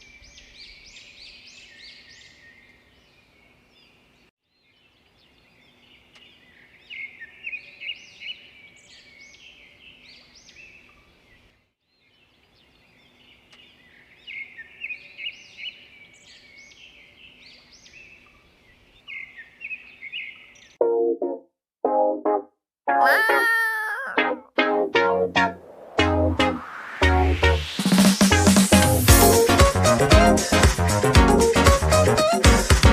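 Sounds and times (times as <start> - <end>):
small birds chirping: 0.0 - 20.8
louder low sound: 25.4 - 29.2.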